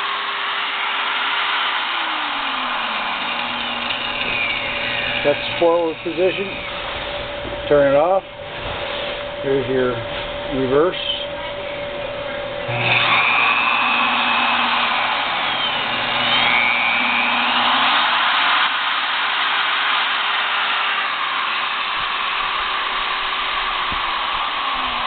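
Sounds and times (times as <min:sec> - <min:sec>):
drill press motor running: 0:00.0 - 0:25.0.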